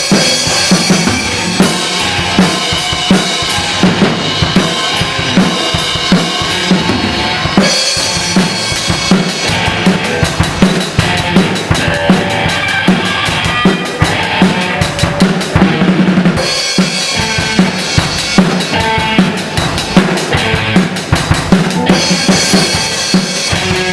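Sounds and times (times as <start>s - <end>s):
drum-driven music: 0.0s - 23.9s.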